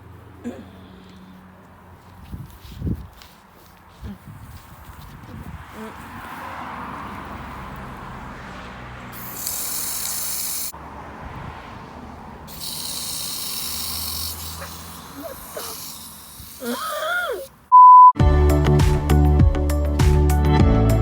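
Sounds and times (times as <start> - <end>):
garden hose spraying water: 9.1 - 10.8, 12.4 - 17.6
short high beep: 17.7 - 18.2.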